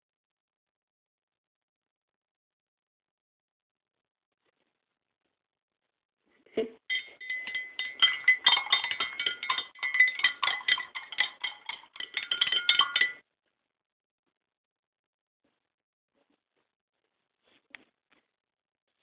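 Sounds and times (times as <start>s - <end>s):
spoon clinking in glass: 6.9s - 13.2s.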